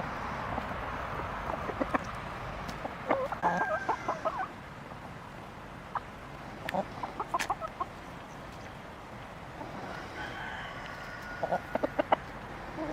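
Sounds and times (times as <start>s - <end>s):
chickens clucking: 1.4s - 5.1s, 5.8s - 8.8s, 9.5s - 12.9s.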